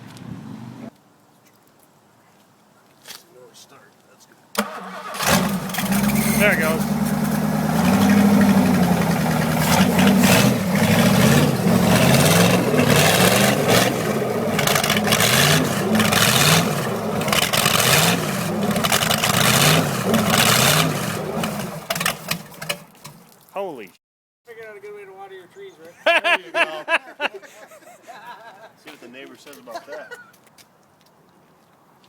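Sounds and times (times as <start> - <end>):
engine revving: 4.6 - 22.7.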